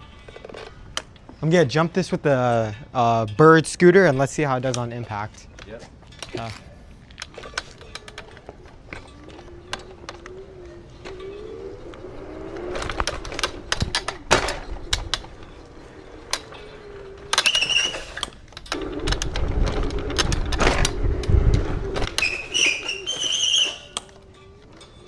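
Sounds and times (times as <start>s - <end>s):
electric scooter motor whine: 7.8s - 25.0s
scooter deck rattling and thuds: 12.4s - 24.2s
high-pitched squeals: 15.4s - 18.5s, 22.0s - 25.0s.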